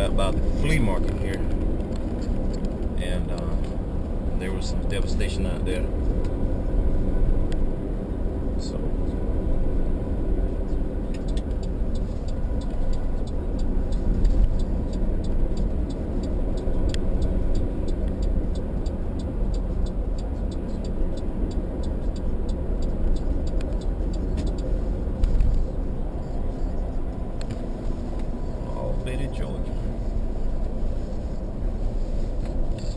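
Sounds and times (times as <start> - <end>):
car road noise rumble: 0.0 - 32.9
light regular ticking: 8.6 - 32.9.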